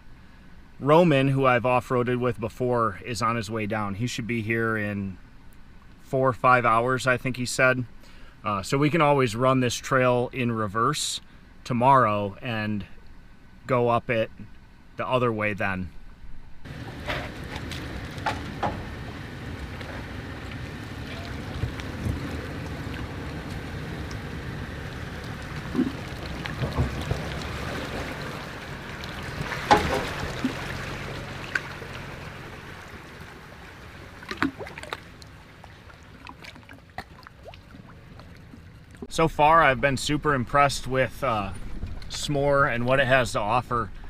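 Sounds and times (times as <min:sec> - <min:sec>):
car engine at low speed: 0:00.0 - 0:08.7, 0:11.2 - 0:44.0
tyre and trail noise: 0:16.0 - 0:44.0.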